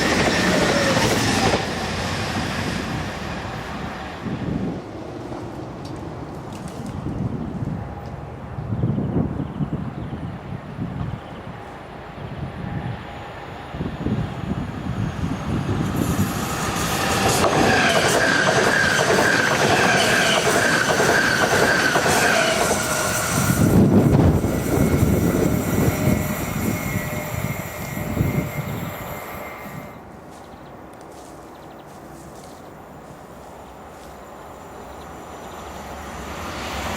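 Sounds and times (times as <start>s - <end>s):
train wheels squealing: 0.0s - 3.2s, 14.4s - 30.0s
train clattering over rails: 0.0s - 4.4s, 15.2s - 30.4s.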